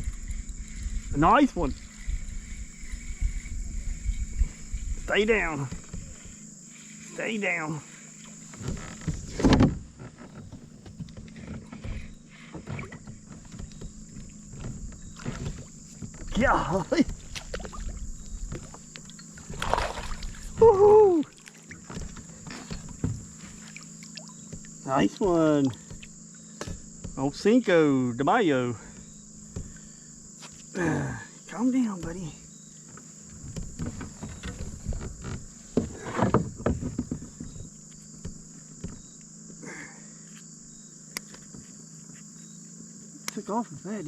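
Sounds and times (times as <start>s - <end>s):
high insect drone: 0.0s - 44.0s
knocks against kayak hull: 8.5s - 20.8s, 21.7s - 23.8s, 24.4s - 27.3s, 28.9s - 29.9s, 32.9s - 39.2s
short splash: 19.5s - 20.6s
man whooping: 20.6s - 21.3s.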